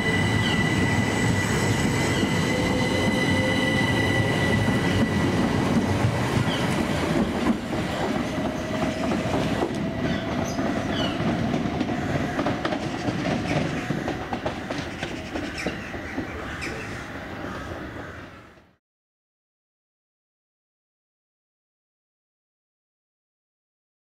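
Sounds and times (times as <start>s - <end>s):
train wheels clicking over joints: 1.3s - 16.9s.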